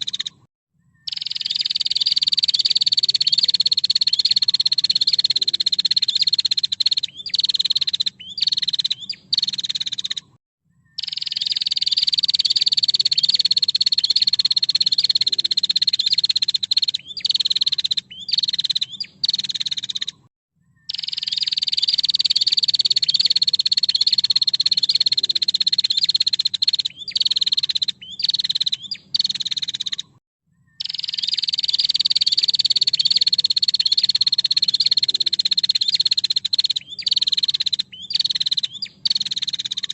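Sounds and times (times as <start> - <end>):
bird buzzing trill: 1.1 - 10.3, 11.0 - 20.2.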